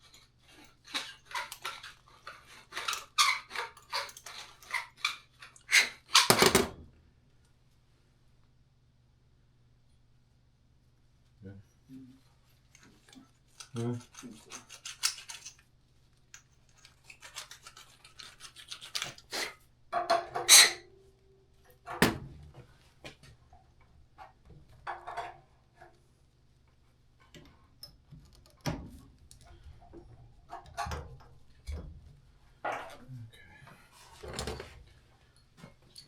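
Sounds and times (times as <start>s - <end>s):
rubbing and scraping: 12.9s - 15.6s, 16.7s - 19.6s.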